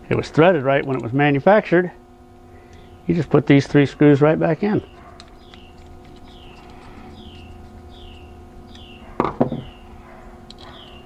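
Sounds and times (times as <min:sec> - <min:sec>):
steady low hum: 0:00.0 - 0:11.0
bird chirping: 0:04.7 - 0:10.0, 0:10.6 - 0:11.0.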